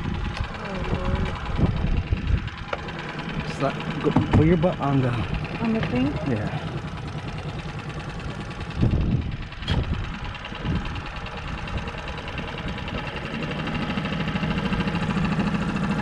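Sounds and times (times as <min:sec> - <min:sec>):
outboard motor running: 0:00.0 - 0:16.0
sharp knocks: 0:04.1 - 0:04.6.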